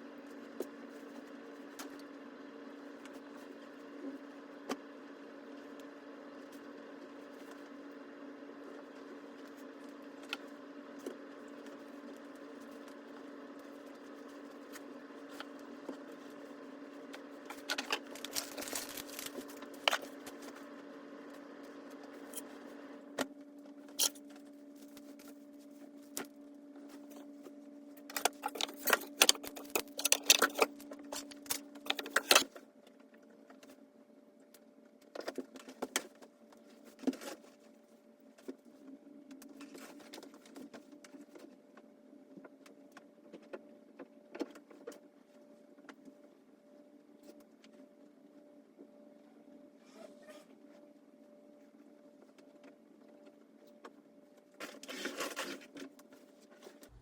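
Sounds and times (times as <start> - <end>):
steady low hum: 0.0 - 57.0
household items rattling and clattering: 17.5 - 20.2, 28.1 - 32.4.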